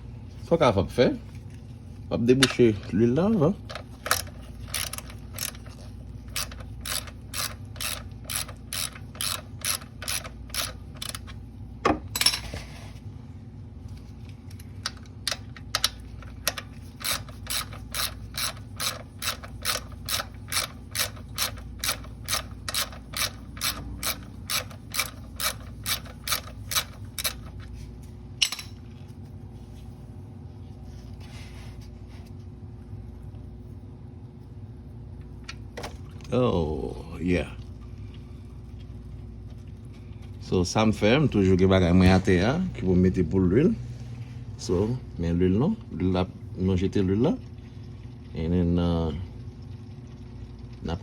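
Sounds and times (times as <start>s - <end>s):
ratchet wrench clicking: 4.0s - 5.7s, 6.3s - 11.3s, 16.5s - 27.5s.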